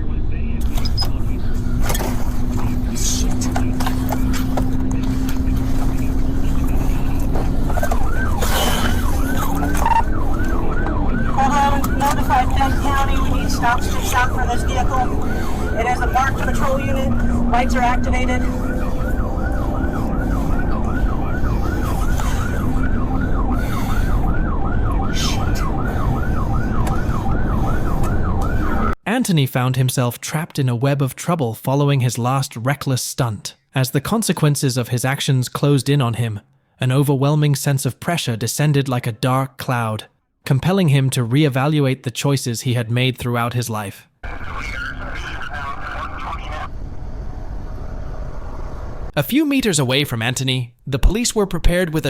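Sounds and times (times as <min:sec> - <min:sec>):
car road and engine rumble: 0:00.0 - 0:29.0, 0:44.2 - 0:49.2
police siren yelping: 0:00.6 - 0:29.0.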